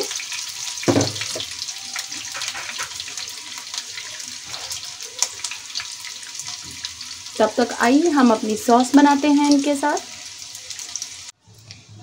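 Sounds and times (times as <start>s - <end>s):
chicken sizzling in hot oil: 0.0s - 11.4s
knock: 0.9s - 1.5s.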